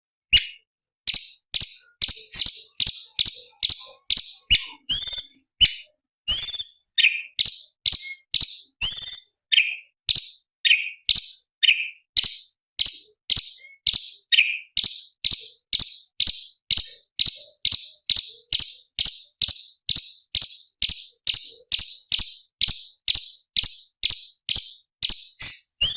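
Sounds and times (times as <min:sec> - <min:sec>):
bird singing sharp high notes: 0:00.3 - 0:15.2, 0:23.2 - 0:25.9.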